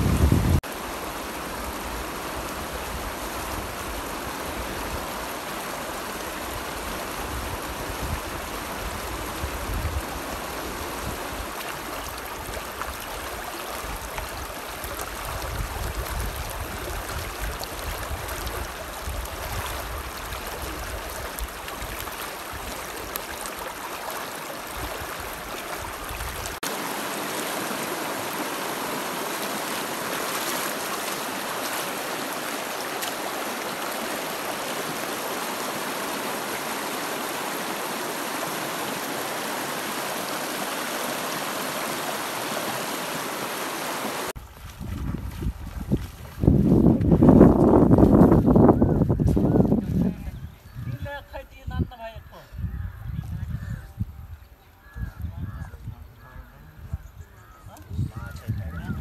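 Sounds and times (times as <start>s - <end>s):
river flowing: 0.0s - 44.7s.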